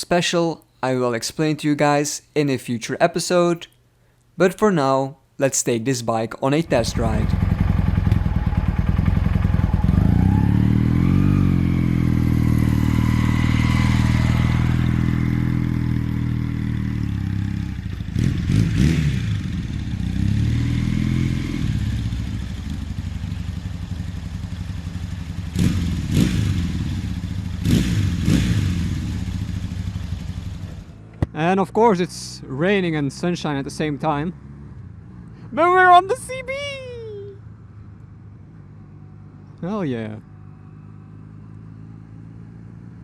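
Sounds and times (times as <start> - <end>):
motorcycle engine revving: 6.7 - 31.3.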